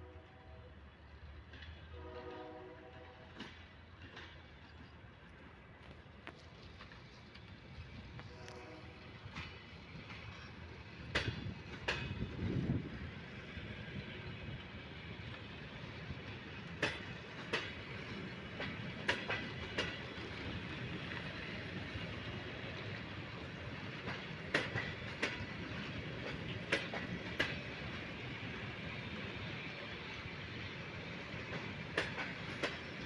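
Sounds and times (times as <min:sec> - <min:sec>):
railway cars rumbling on track: 0:00.0 - 0:33.0
wheel clacks over rail joints: 0:16.3 - 0:21.4, 0:23.8 - 0:28.2, 0:31.3 - 0:33.0.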